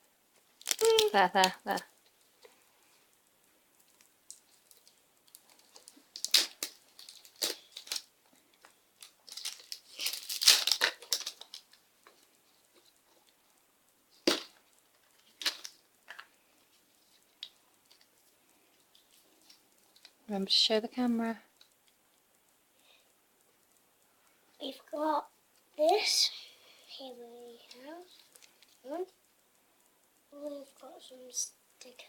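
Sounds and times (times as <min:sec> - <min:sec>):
wrapping torn and crinkled: 0:00.6 - 0:02.1, 0:03.8 - 0:13.3, 0:14.2 - 0:18.1.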